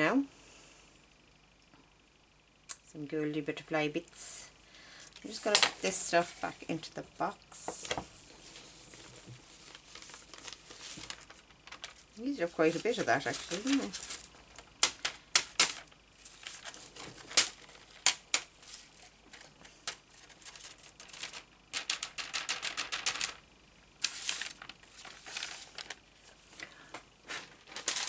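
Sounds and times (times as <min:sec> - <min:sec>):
crinkly clicking and rustling: 0:05.1 - 0:06.4, 0:07.7 - 0:23.4, 0:24.0 - 0:28.0.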